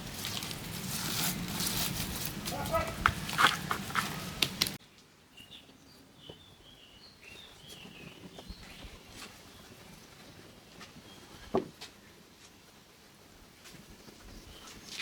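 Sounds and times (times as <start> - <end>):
small birds chirping: 5.3 - 10.4.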